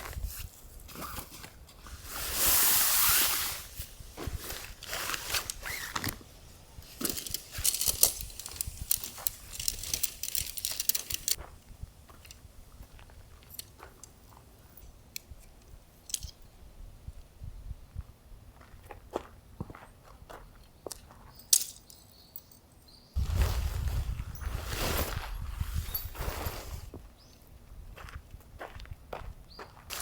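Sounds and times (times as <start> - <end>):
handling rustles: 0.0 - 11.4, 23.2 - 27.0
light clinks and rattles: 6.8 - 11.4, 20.9 - 23.0.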